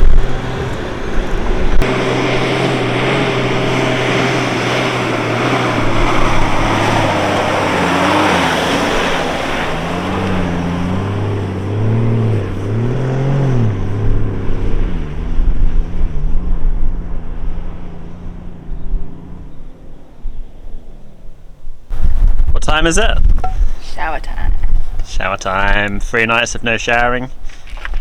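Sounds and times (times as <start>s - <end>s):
tyre and wind noise: 0.0s - 12.9s, 13.6s - 28.0s
car engine under load: 0.0s - 22.2s.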